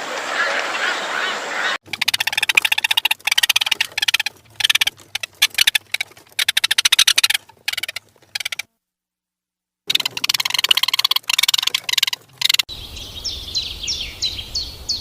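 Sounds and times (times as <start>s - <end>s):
animal clicking trills: 1.8s - 8.7s, 9.9s - 12.7s.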